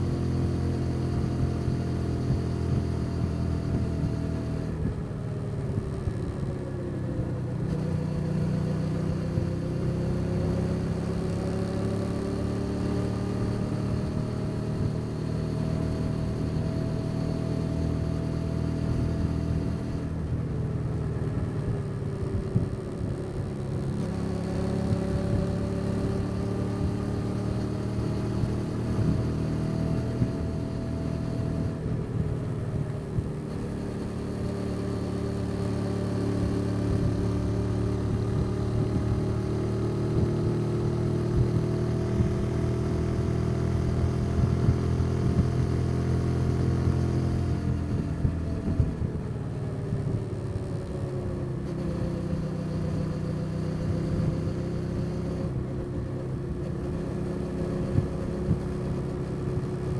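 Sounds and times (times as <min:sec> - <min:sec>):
motorcycle engine accelerating: 0:00.0 - 0:59.9
wind and road noise: 0:00.0 - 0:59.9.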